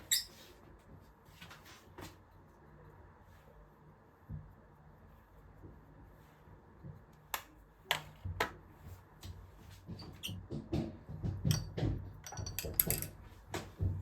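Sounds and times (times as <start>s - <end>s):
taps and dull thuds: 9.2s - 12.2s.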